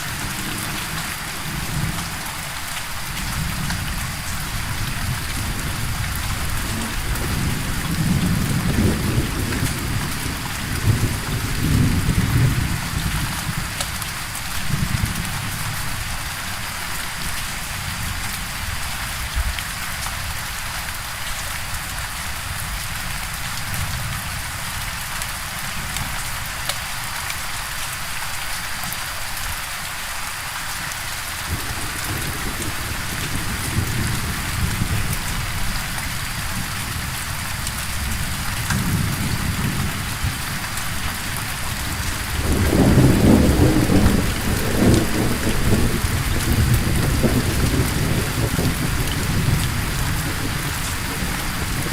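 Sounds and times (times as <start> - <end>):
heavy rain hissing: 0.0 - 51.9
thunder rumbling: 3.2 - 13.8, 31.5 - 51.9.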